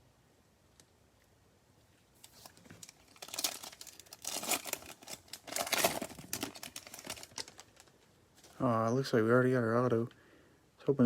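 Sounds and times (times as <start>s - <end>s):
wrapper tearing and crinkling: 2.2s - 8.6s.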